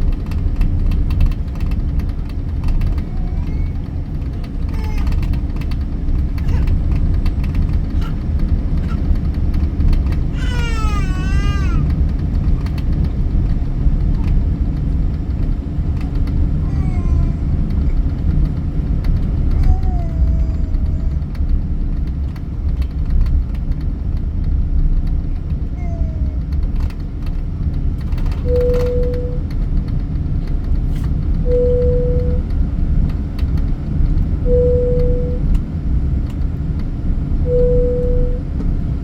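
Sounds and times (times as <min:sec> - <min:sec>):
airliner cabin rumble: 0:00.0 - 0:39.0
soft child vocal sounds: 0:02.9 - 0:05.4, 0:10.4 - 0:11.9, 0:16.1 - 0:18.0, 0:19.5 - 0:21.4, 0:25.7 - 0:26.6
young child crying: 0:03.0 - 0:05.4, 0:06.4 - 0:06.9, 0:10.3 - 0:12.0, 0:16.5 - 0:17.9, 0:19.5 - 0:21.4, 0:25.7 - 0:26.6.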